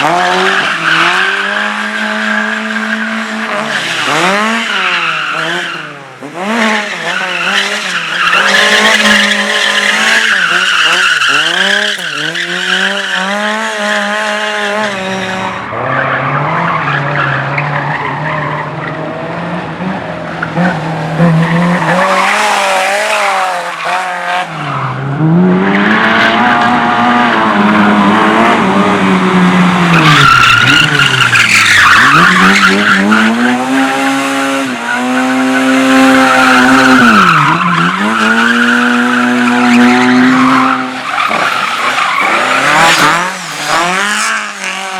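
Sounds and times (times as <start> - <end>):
race car engines revving: 0.0 - 44.9
tyre squeal: 6.8 - 16.2, 29.9 - 44.8.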